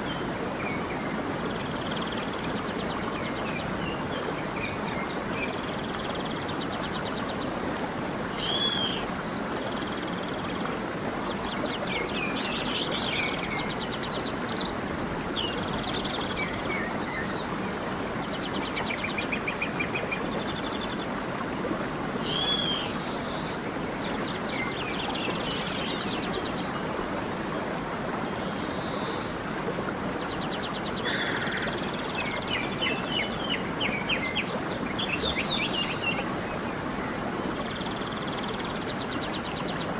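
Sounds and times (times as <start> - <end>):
stream running: 0.0 - 39.9
birds calling and singing: 30.3 - 39.9.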